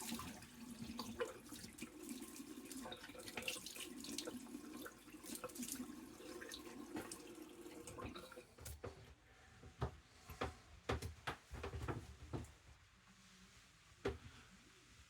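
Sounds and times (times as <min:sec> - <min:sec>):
tap water running into sink: 0:00.0 - 0:08.8.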